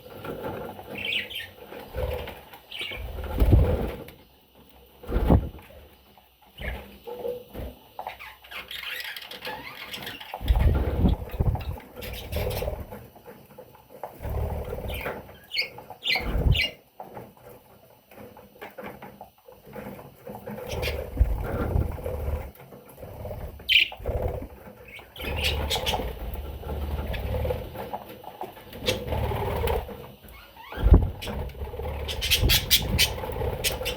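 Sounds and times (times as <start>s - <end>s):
birds thumping about: 0.1s - 4.1s, 5.0s - 5.8s, 9.5s - 13.1s, 14.0s - 16.8s, 20.3s - 33.9s
budgerigars chirping: 0.9s - 1.6s, 8.0s - 12.8s, 14.8s - 16.8s, 20.7s - 21.6s, 23.7s - 24.0s, 24.9s - 26.2s, 32.0s - 33.9s.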